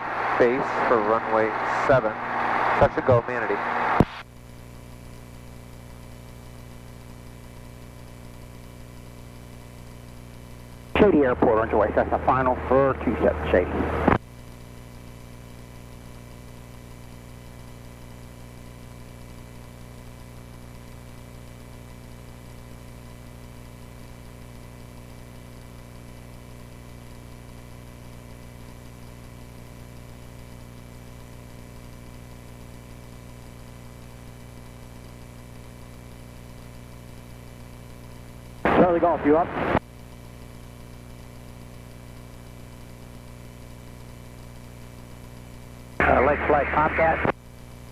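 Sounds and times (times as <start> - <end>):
airplane piston engine droning: 0.0 - 4.2.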